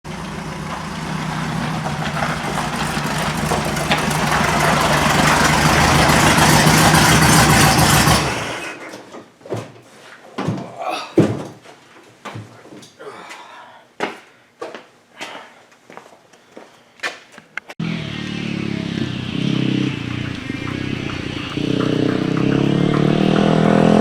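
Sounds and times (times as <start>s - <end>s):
dune buggy engine running: 0.1s - 8.8s, 17.8s - 24.0s
knocks: 20.2s - 24.0s.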